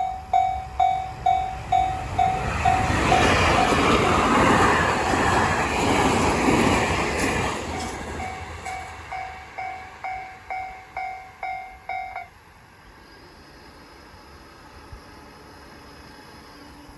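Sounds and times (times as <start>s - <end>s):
level crossing bell ringing: 0.0s - 2.9s, 8.7s - 12.3s
train rumble: 0.0s - 13.5s.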